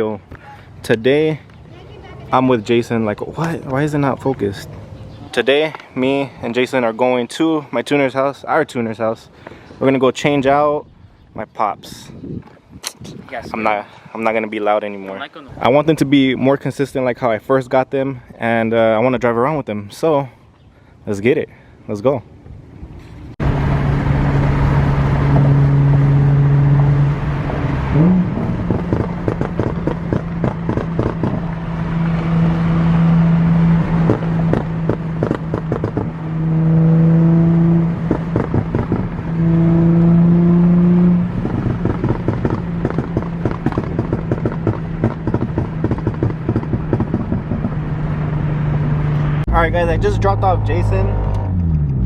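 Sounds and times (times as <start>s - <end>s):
sports car engine revving: 23.4s - 52.0s
exhaust pops and crackles: 27.1s - 33.0s, 33.6s - 36.7s, 37.8s - 40.1s, 40.9s - 48.3s.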